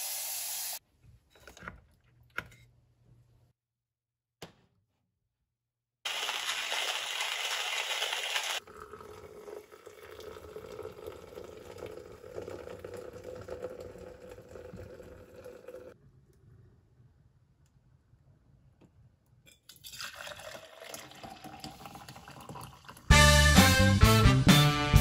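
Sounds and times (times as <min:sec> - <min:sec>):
hot water pouring into glass: 0:06.1 - 0:16.0, 0:19.7 - 0:23.1.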